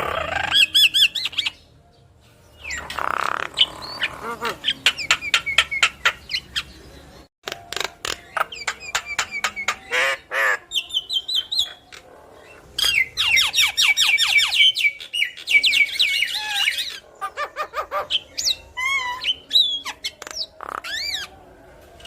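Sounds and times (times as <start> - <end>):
myna singing and chattering: 0.0 - 22.0.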